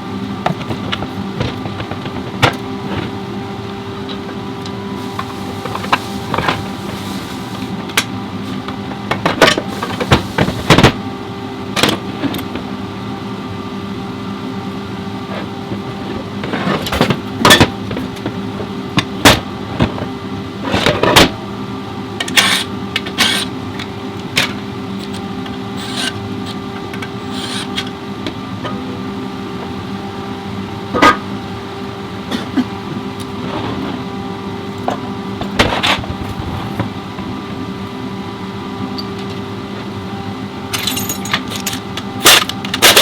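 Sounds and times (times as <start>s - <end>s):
mechanical hum: 0.0s - 43.0s
metallic clanks of tools: 40.7s - 43.0s.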